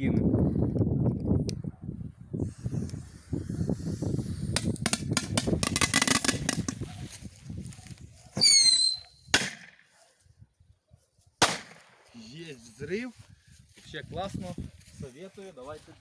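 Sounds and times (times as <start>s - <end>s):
firecrackers crackling rapidly: 2.4s - 7.1s.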